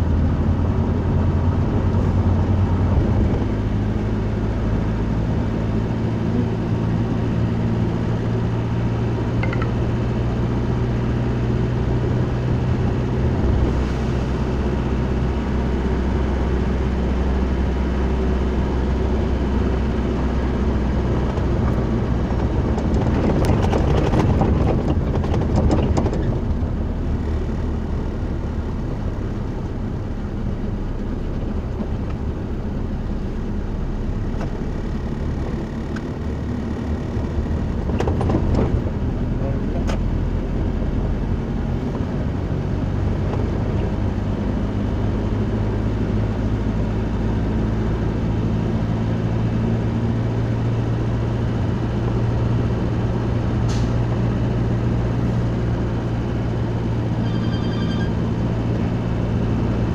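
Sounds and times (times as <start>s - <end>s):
vehicle engine running: 0.0s - 59.9s
rattling clicks: 9.4s - 9.8s.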